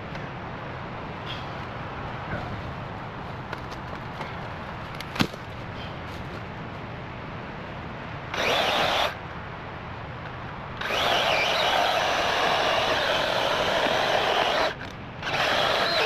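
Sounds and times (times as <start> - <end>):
electric chainsaw running: 8.3 - 9.2, 10.8 - 16.0.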